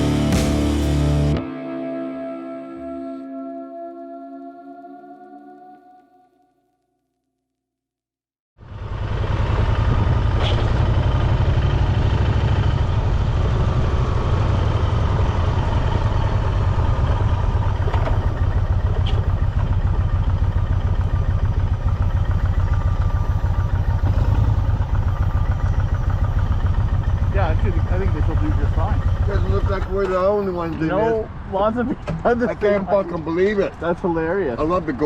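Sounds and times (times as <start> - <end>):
motorcycle engine running: 0.0 - 1.4, 8.6 - 30.7.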